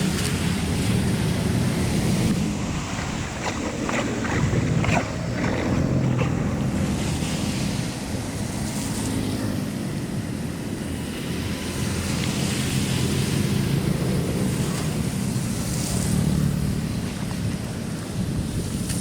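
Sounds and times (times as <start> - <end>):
water rushing: 0.0 - 19.0
wind buffeting microphone: 0.0 - 19.0
splashes or knocks: 2.4 - 7.6.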